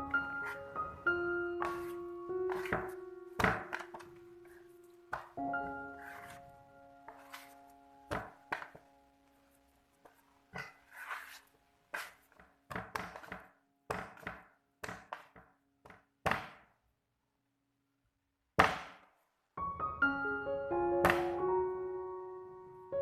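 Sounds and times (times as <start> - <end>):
background piano music: 0.0 - 12.2, 19.6 - 23.0
dough thudding on work surface: 2.5 - 4.1, 8.1 - 8.8, 12.4 - 16.7, 18.6 - 19.1.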